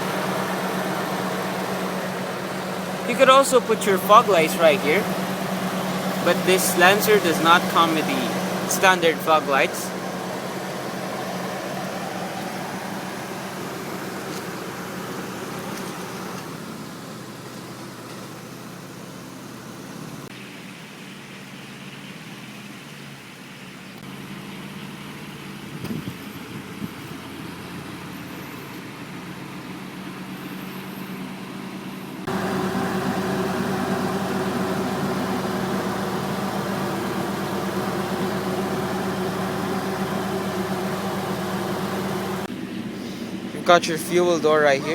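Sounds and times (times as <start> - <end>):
car engine idling: 0.0 - 20.3, 32.3 - 44.9.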